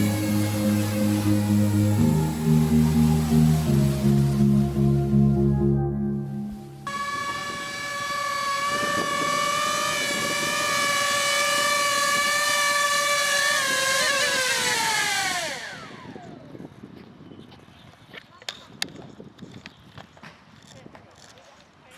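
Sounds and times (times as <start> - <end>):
rc helicopter rotor whining: 0.0 - 4.6, 6.9 - 17.0.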